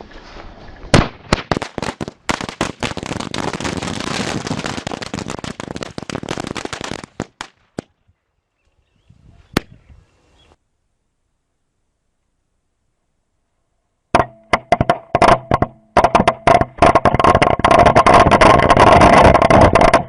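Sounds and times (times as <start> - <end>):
firecrackers going off: 0.2 - 7.9.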